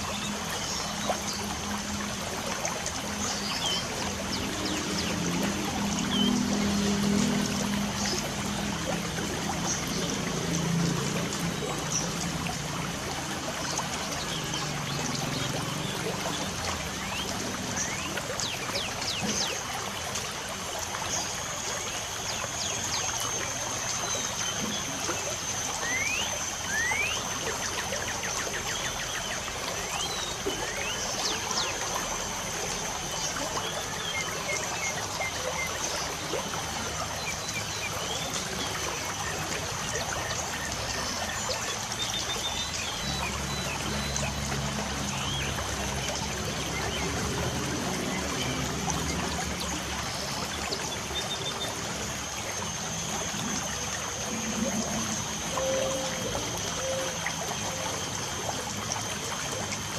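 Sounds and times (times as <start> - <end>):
birds chirping: 3.1 - 8.3.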